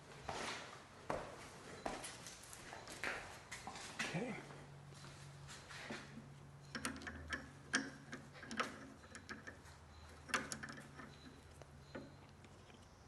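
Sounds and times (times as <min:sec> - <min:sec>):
hand tools clicking and tapping: 0:06.6 - 0:13.0.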